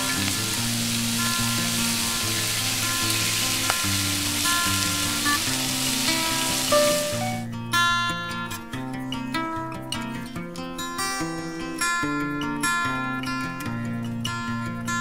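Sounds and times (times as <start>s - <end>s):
pork sizzling on griddle: 0.0s - 7.4s
background music: 0.0s - 7.9s.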